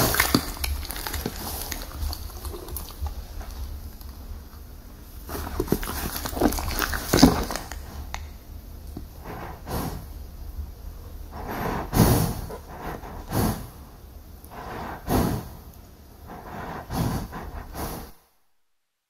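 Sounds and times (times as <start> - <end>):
horse snorting: 0.0 - 3.8, 9.2 - 10.2, 11.3 - 13.9, 14.5 - 18.2.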